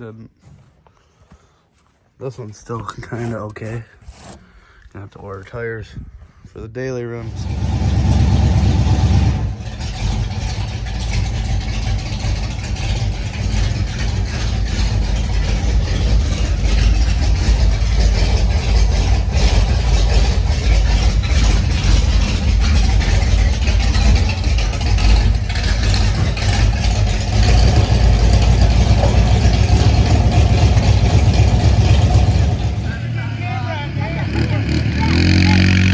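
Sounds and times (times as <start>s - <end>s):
vehicle engine deep rumble: 7.2s - 35.9s.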